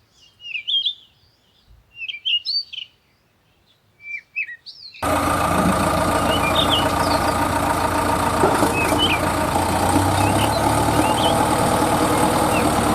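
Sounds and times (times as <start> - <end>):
birds chirping: 3.6 - 12.9
heavy vehicle engine idling: 5.0 - 12.9.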